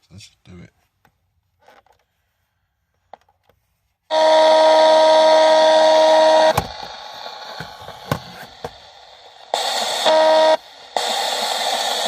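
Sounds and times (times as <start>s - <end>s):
loud electronic horn-like tone: 4.1s - 6.7s, 10.0s - 10.6s
hissing radio static with clicks: 6.4s - 12.0s.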